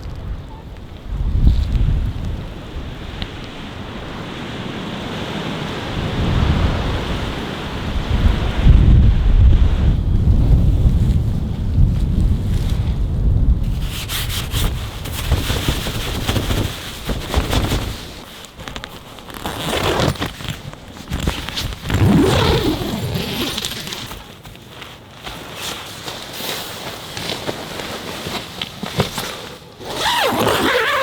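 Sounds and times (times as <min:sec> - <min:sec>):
wind rumble on microphone: 0:00.0 - 0:18.3
rustling handling noise: 0:13.6 - 0:31.0
crackles: 0:15.0 - 0:31.0.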